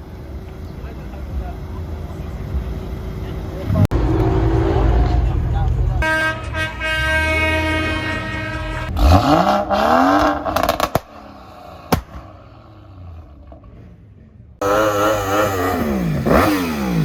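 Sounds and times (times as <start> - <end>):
engine revving: 3.6 - 6.2, 6.8 - 17.0
vehicle horn: 6.0 - 10.1
sharp cracks: 10.5 - 11.2, 11.8 - 12.4.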